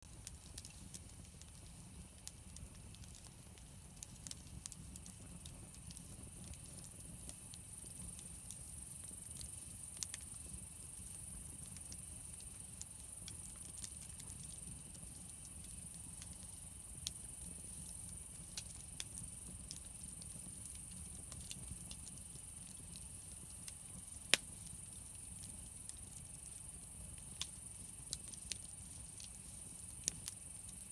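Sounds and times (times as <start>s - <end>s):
campfire crackling: 0.1s - 30.9s
sharp fire pops: 16.9s - 26.3s.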